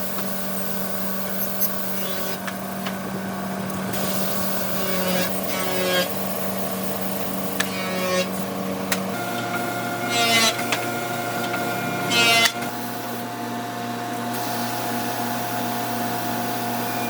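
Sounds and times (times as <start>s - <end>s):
woodworking machinery hum: 0.0s - 17.0s
rapid rasping: 4.7s - 6.2s, 9.3s - 12.7s.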